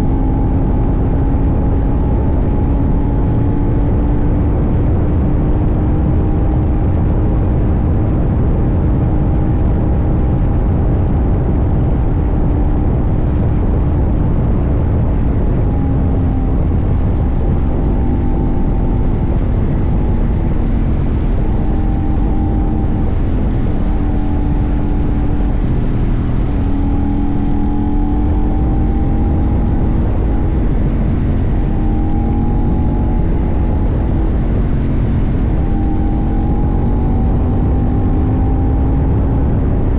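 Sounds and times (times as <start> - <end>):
heavy wind rush: 0.0 - 39.9
motorcycle engine cruising: 0.0 - 39.9.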